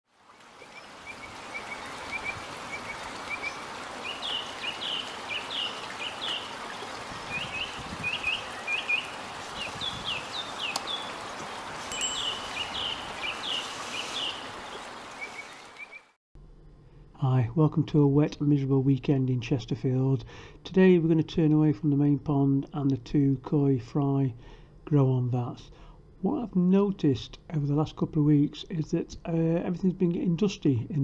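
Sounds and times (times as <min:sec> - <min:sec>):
songbird chirping: 0:07.3 - 0:16.1.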